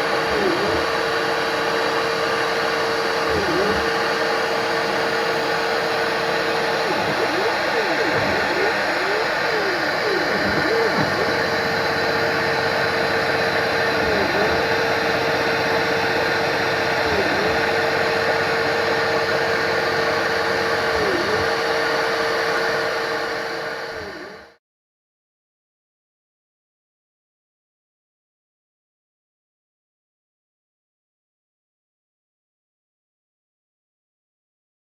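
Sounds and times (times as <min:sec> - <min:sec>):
machine tool humming: 0:00.0 - 0:24.6.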